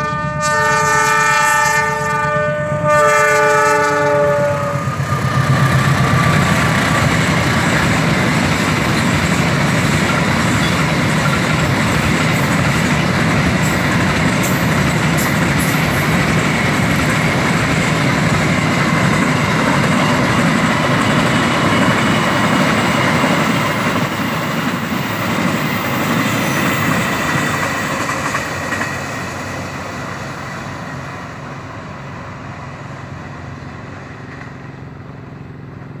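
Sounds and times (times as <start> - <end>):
freight train wagons rolling: 2.8 - 31.3.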